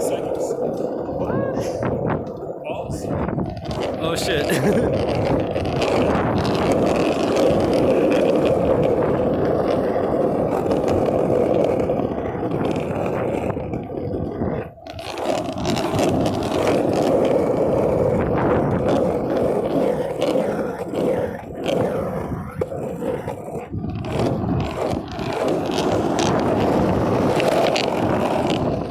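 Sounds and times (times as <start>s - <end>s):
longboard wheels rolling on pavement: 0.0s - 28.9s.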